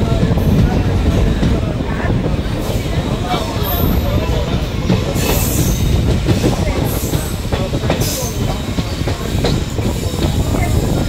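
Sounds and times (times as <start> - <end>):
train wheels rumbling and clacking: 0.0 - 11.0.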